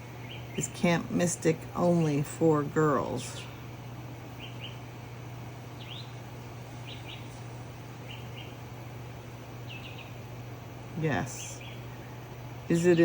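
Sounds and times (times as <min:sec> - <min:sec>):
steady low hum: 0:00.0 - 0:13.0
small bird chirping: 0:00.1 - 0:00.8, 0:04.3 - 0:04.9, 0:05.7 - 0:08.7, 0:09.6 - 0:10.2, 0:11.2 - 0:12.2.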